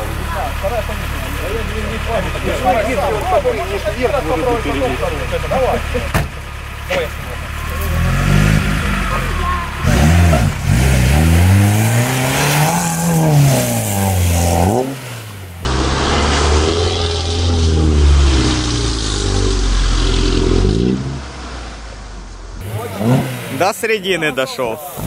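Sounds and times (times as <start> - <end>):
car engine revving hard: 7.6 - 21.8, 22.6 - 23.9.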